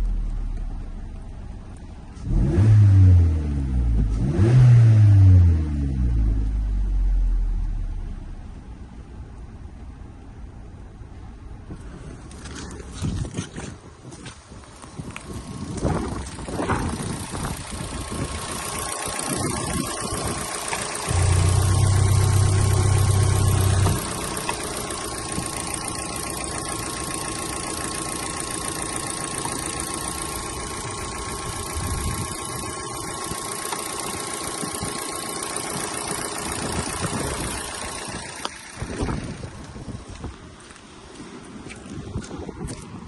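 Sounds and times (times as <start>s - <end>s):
petrol engine running: 15.7s - 39.8s.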